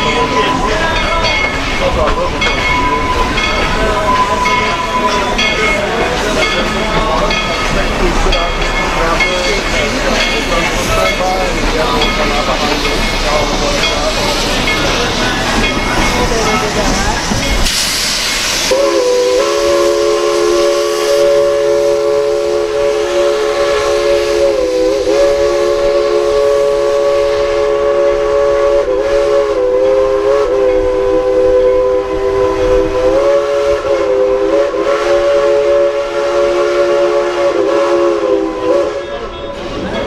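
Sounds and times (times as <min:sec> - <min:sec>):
steam locomotive chime whistle: 0:00.0 - 0:17.9, 0:18.5 - 0:40.0
escaping steam hiss: 0:00.0 - 0:40.0.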